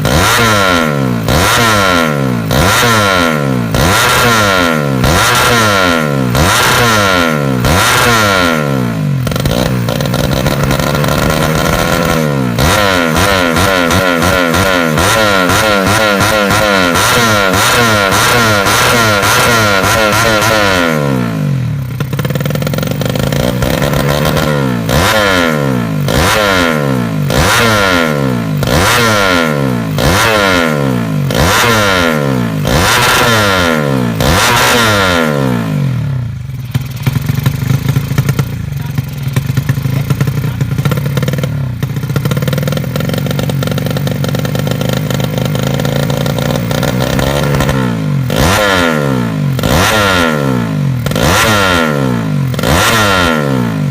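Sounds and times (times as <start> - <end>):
motorcycle engine revving: 0.0 - 53.9
engine crackling pops: 9.2 - 14.7, 22.0 - 24.6, 36.8 - 47.9.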